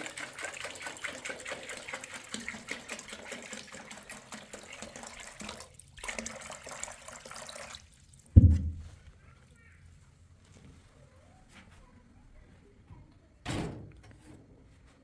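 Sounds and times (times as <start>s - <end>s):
water running and splashing: 0.0s - 8.9s.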